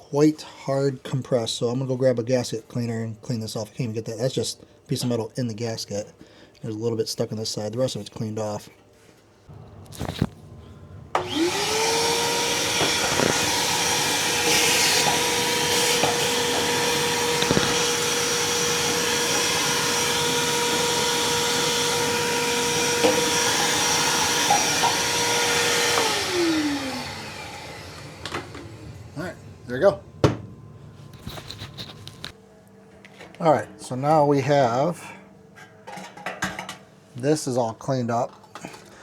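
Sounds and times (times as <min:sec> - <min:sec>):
power tool high whine: 0:09.6 - 0:30.2
light scrapes and ticks: 0:31.2 - 0:32.4.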